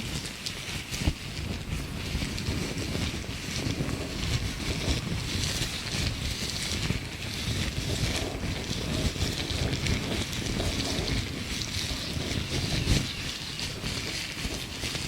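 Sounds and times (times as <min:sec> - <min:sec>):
loud crackle: 0:00.0 - 0:15.0
gloved hands rubbing: 0:00.4 - 0:15.0.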